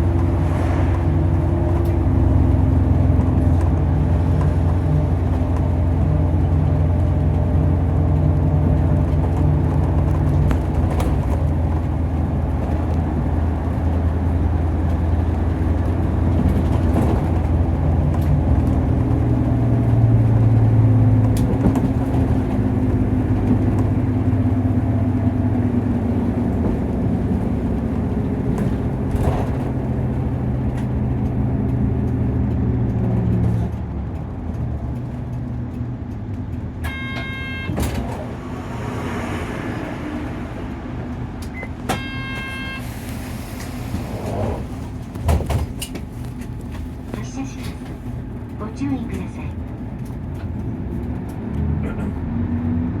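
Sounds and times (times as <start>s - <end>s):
bus diesel engine running: 0.0s - 53.0s
short high electronic beeps: 41.6s - 42.8s.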